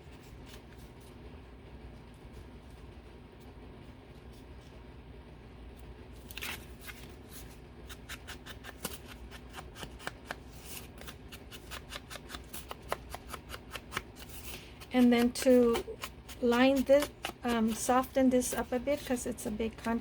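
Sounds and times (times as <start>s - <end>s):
scissors snipping paper: 6.2s - 20.0s.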